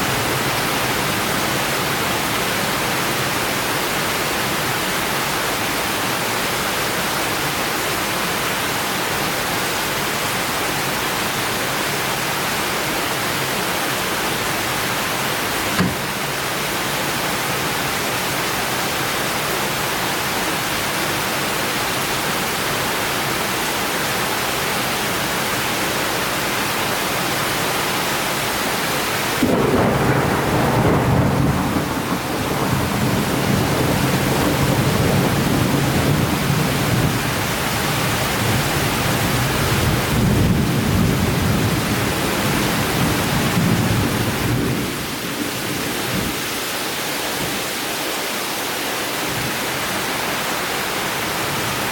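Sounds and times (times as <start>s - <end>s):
rain hissing: 14.3s - 18.4s
thunder rumbling: 29.4s - 46.3s.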